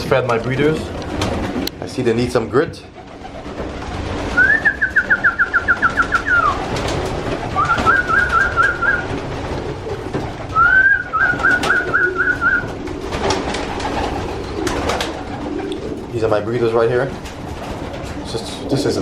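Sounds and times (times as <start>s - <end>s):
pigeons cooing: 2.9s - 19.0s
high whistled trills: 4.4s - 6.7s, 7.5s - 9.2s, 10.5s - 12.8s.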